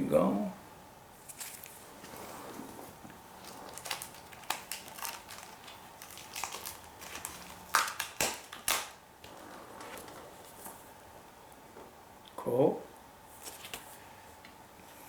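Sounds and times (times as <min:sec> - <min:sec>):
plastic bags crinkling: 0:02.9 - 0:10.9.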